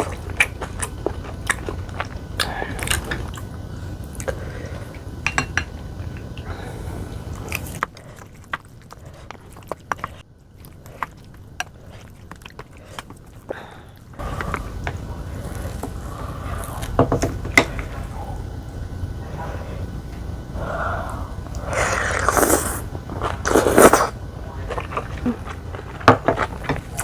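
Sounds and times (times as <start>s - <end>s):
person chewing food: 0.0s - 3.4s, 21.0s - 27.0s
low background hum: 0.0s - 27.0s.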